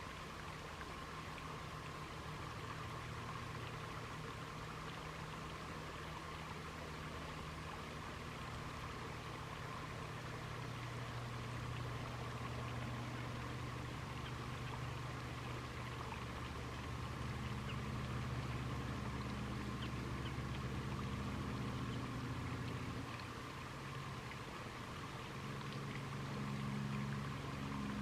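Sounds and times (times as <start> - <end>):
distant engine humming: 10.0 - 28.0.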